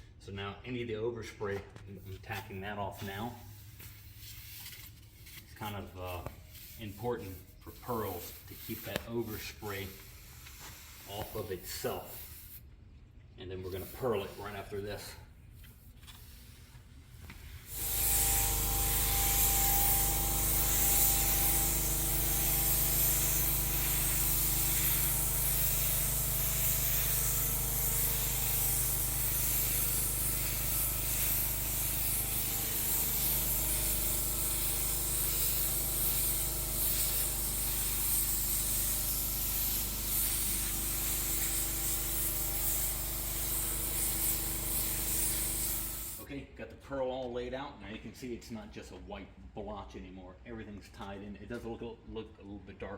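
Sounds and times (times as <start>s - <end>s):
paint spray gun hissing: 7.4s - 12.6s, 13.7s - 14.6s, 17.4s - 46.3s
steady hum: 17.7s - 46.3s.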